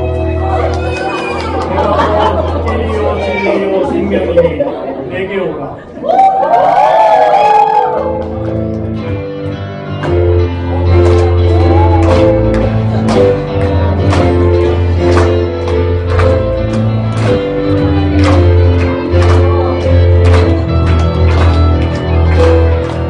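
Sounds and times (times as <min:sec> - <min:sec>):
band playing worship music: 0:08.3 - 0:23.0.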